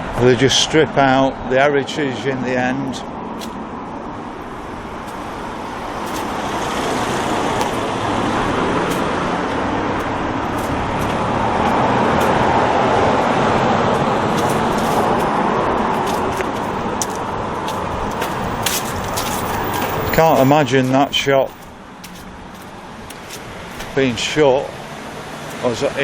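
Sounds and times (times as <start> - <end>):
motor vehicle passing: 3.2 - 26.0.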